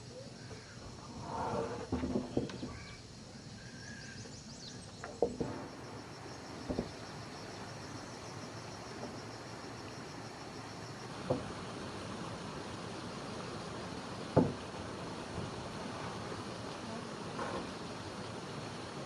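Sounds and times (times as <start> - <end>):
insect chirping: 0.0 - 19.0
sharp knocks: 14.4 - 14.6.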